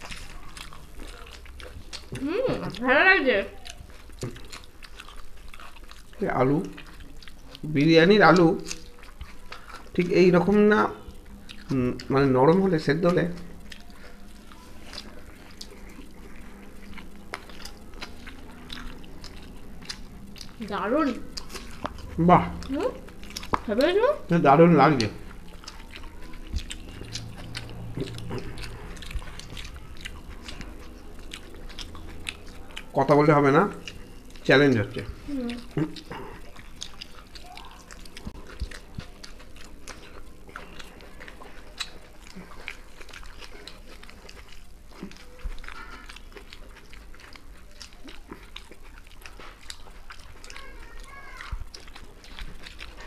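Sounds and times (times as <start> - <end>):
people chewing food: 0.0 - 53.0
lip smacks: 24.9 - 33.0.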